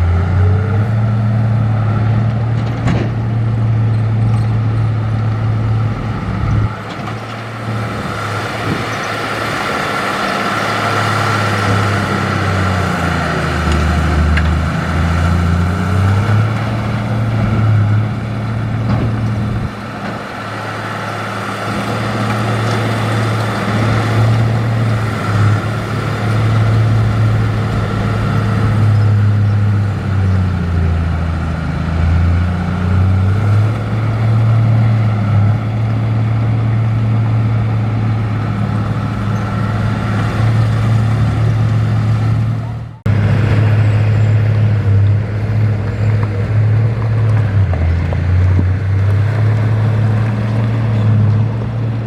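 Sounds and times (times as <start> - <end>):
heavy diesel engine working: 0.0 - 52.0.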